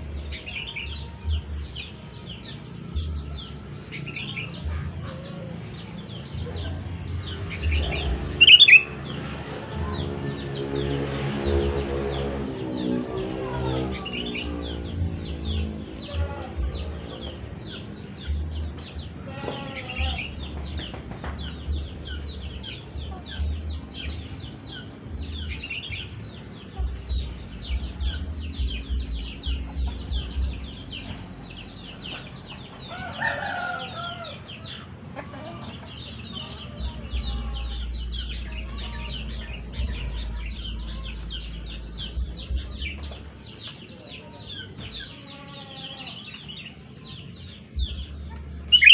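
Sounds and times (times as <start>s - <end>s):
small birds chirping: 0.0s - 48.9s
chicken clucking: 31.9s - 41.2s.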